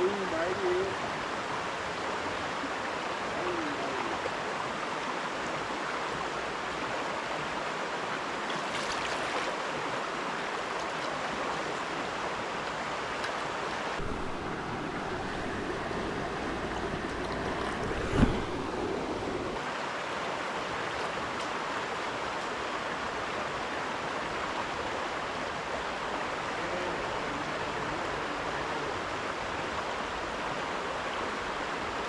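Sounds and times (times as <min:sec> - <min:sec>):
river current rushing: 0:00.0 - 0:32.0
low thump: 0:16.6 - 0:19.6.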